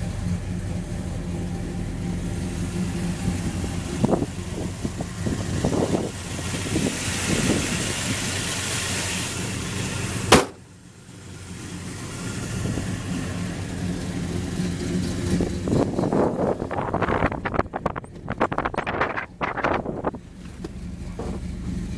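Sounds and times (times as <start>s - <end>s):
car engine running: 0.0s - 21.9s
sharp knock: 10.3s - 10.6s.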